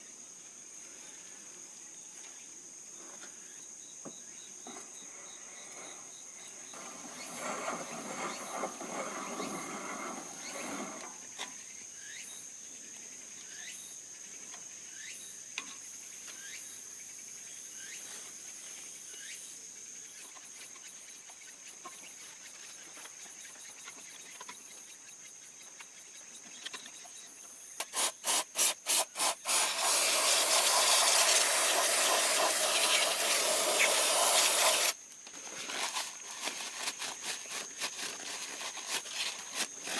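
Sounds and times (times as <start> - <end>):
crickets trilling: 0.0 - 39.9
aerosol spray hissing: 27.8 - 35.0
spray can ball rattling: 27.9 - 35.0.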